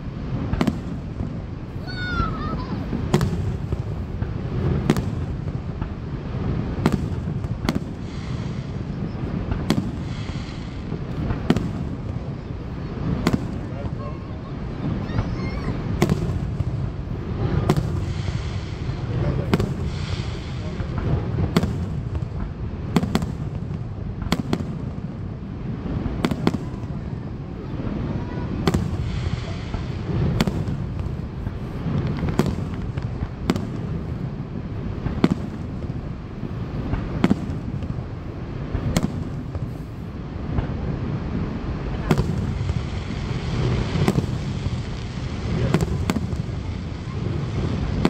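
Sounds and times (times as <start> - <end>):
fireworks bursting with bangs: 0.0 - 48.0
steady low rumble: 15.7 - 48.0.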